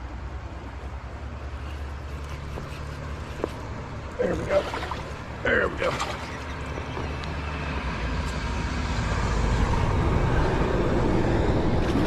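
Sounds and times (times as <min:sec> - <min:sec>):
fast-flowing creek rushing: 0:04.4 - 0:06.9.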